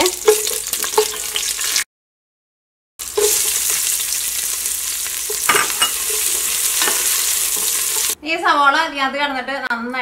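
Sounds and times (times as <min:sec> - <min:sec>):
ghee sizzling in a pot: 0:00.0 - 0:01.9, 0:03.0 - 0:08.2
wooden spatula stirring: 0:05.3 - 0:08.2.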